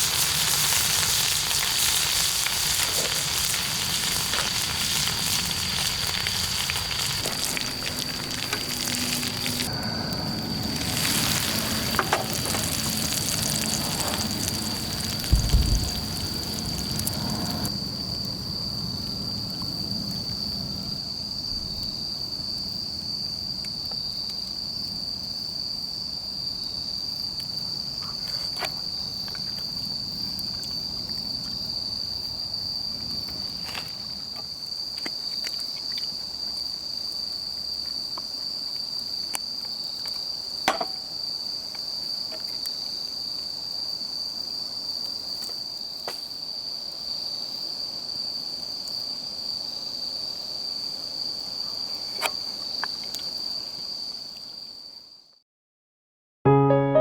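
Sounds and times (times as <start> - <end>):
food sizzling over fire: 0.0 - 18.0
insects trilling: 0.0 - 55.3
low thump: 15.2 - 16.2.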